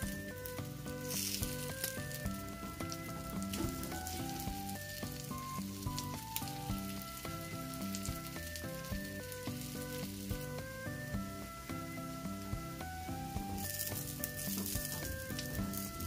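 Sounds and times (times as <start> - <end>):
light background music: 0.0 - 16.0
toast sizzling in a skillet: 0.0 - 16.0
fat spattering pops: 0.9 - 7.1.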